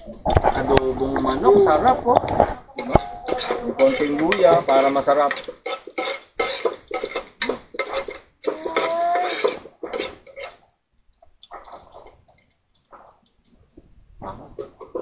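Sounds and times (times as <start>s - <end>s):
metal spoon scraping a pot: 0.0s - 10.6s
ginger sizzling in hot oil: 0.0s - 10.8s.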